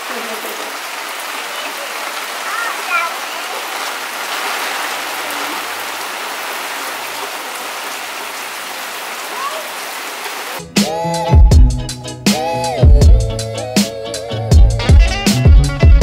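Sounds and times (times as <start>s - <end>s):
steady rain: 0.0s - 10.6s.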